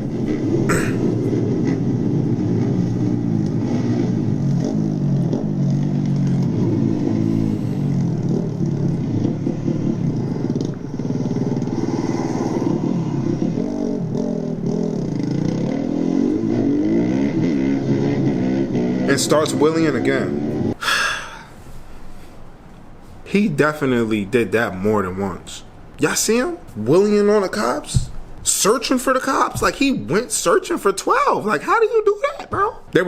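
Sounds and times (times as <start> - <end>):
motorcycle engine revving: 0.0 - 20.8.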